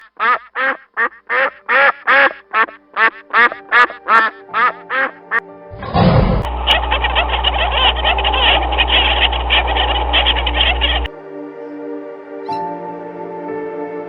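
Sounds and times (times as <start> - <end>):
duck quacking: 0.0 - 11.1
dense noisy sound: 5.7 - 11.1.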